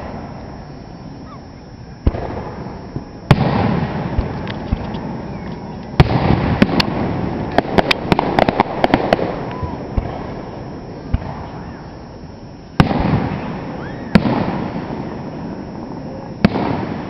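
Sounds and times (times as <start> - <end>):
fireworks bangs: 0.0 - 1.4, 2.0 - 17.0
rumbling echo: 2.0 - 12.2.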